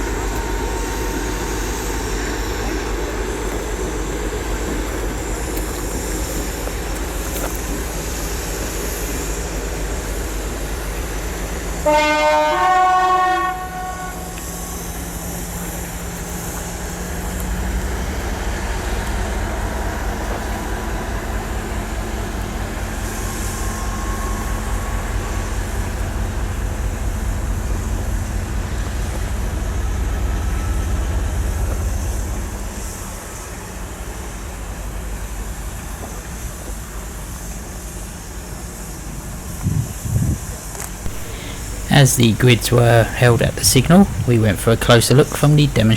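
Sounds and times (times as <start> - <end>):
diesel engine throbbing: 0.0 - 35.8, 41.1 - 45.9
two-tone locomotive horn: 11.6 - 20.3, 20.9 - 34.1.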